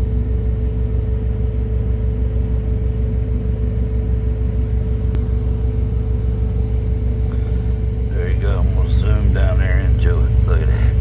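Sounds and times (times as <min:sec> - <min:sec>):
diesel truck engine idling: 0:04.6 - 0:11.0.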